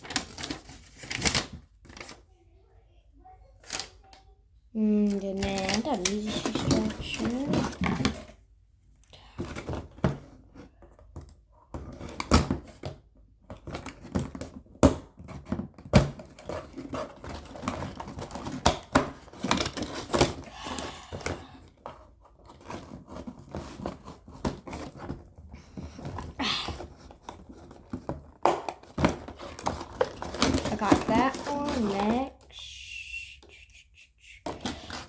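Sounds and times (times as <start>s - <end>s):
plastic packaging crinkling: 5.0s - 8.2s, 27.0s - 33.3s.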